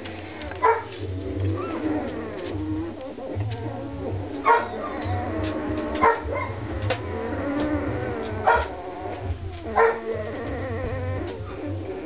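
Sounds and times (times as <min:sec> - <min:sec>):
puppies whining and squealing: 0:00.0 - 0:12.0
puppy yelps: 0:00.5 - 0:12.0.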